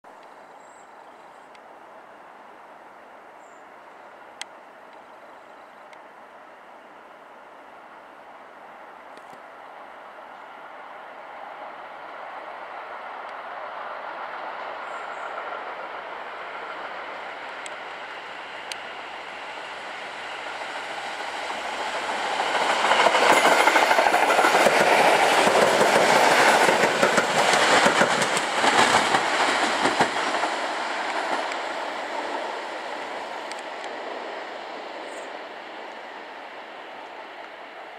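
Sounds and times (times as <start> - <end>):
train wheels clacking on rails: 13.2 - 34.8.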